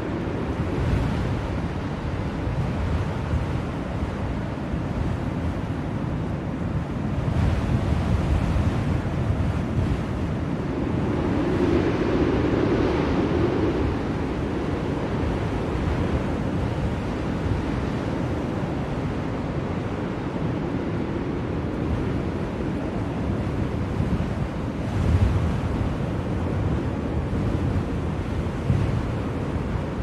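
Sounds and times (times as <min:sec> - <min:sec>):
blizzard wind rushing: 0:00.0 - 0:30.0.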